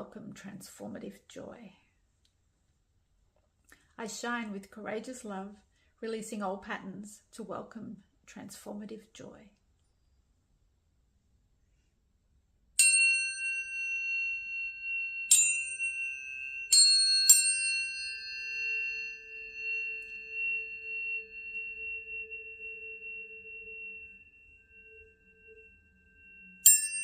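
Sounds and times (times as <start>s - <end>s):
high ringing tones: 12.8s - 27.0s
tuning fork metallic ping: 12.8s - 27.0s
faint lower tone: 18.6s - 27.0s.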